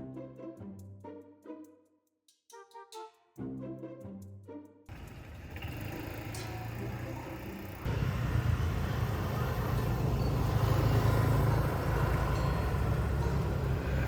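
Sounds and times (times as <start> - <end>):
outdoor noise: 4.9 - 14.0
vehicle engine running: 4.9 - 14.0.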